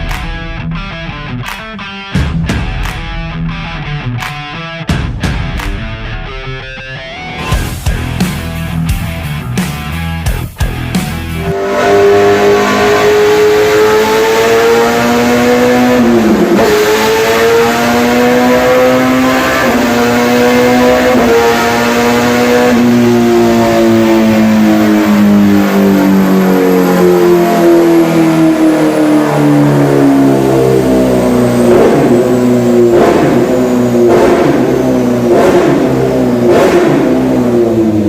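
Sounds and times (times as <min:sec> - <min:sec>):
motorcycle engine revving: 0:10.6 - 0:38.0
exhaust cracks: 0:28.0 - 0:38.0.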